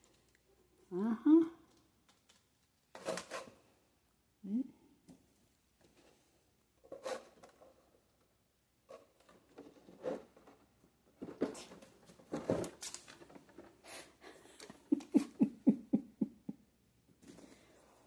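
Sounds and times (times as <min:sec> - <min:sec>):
kittens scuffling and scampering: 0:05.8 - 0:15.4.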